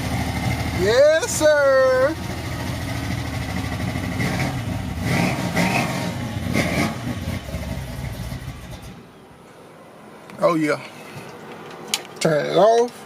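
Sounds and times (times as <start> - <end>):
truck engine starting and revving: 0.0 - 9.1.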